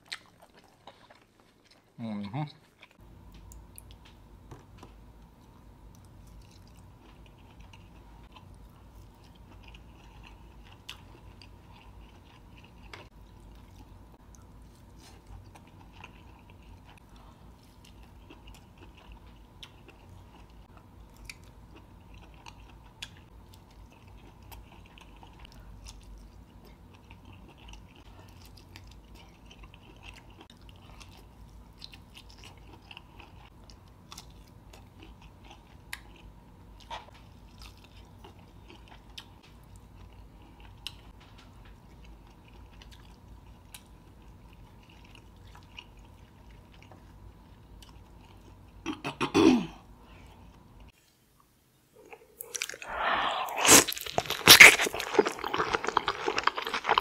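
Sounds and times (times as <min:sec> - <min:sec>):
faint low hum: 0:00.0 - 0:57.0
wet chewing and lip smacks: 0:52.0 - 0:57.0.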